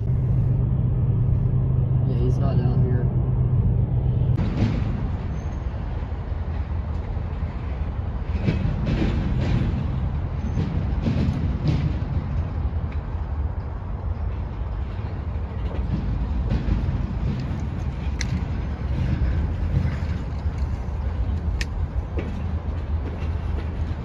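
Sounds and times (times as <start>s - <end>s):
train wheels rumbling on rails: 0.0s - 24.0s
sharp clicks and clanks: 15.5s - 24.0s.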